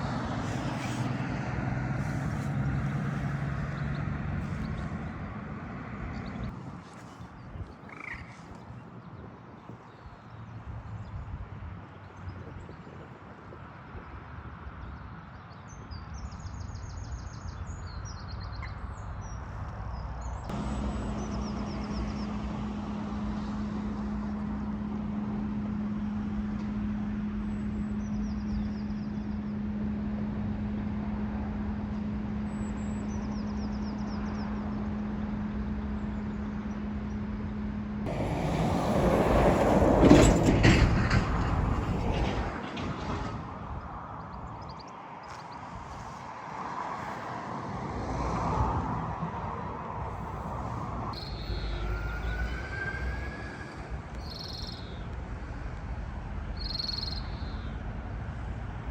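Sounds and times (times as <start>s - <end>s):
vehicle passing close by: 0.0s - 7.1s, 38.0s - 44.6s, 45.3s - 57.1s
passing road traffic: 0.0s - 58.9s
small birds chirping: 6.1s - 11.2s, 51.2s - 52.5s, 54.2s - 55.1s, 56.6s - 57.8s.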